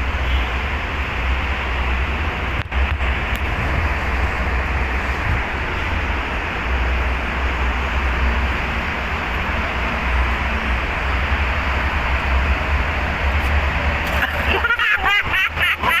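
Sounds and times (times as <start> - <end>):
wind rushing and rumbling: 0.0 - 16.0.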